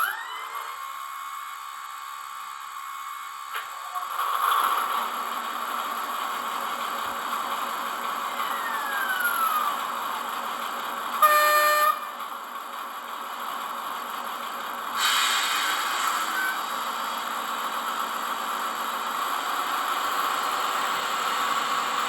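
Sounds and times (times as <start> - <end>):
model locomotive diesel engine sound: 0.0 - 22.0
short horn blast: 11.2 - 12.2.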